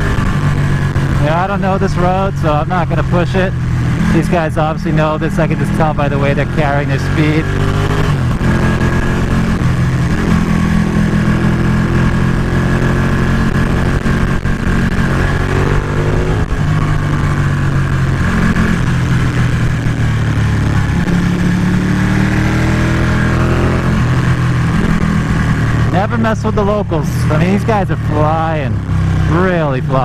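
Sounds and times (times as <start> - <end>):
motorcycle engine revving: 0.0 - 30.0
wind rushing: 13.0 - 25.9.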